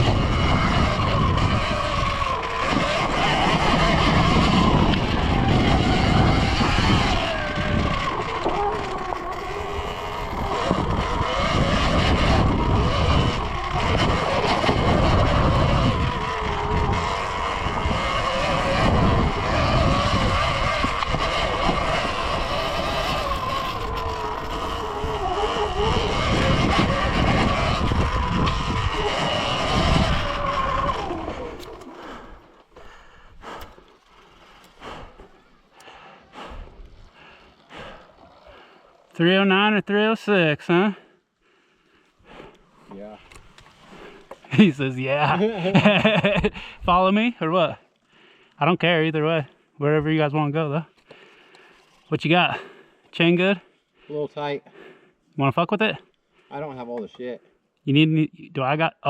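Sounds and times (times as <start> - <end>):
wind rumble on microphone: 0.0 - 32.4
electric motor whine: 0.0 - 38.6.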